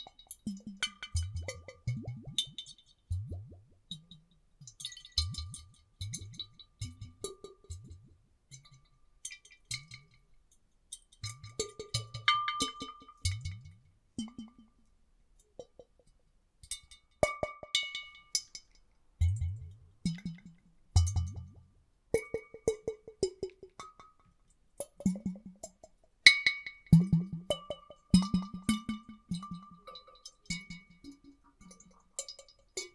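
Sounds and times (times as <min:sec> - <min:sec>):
water sloshing in glass bottles: 0:00.1 - 0:07.0.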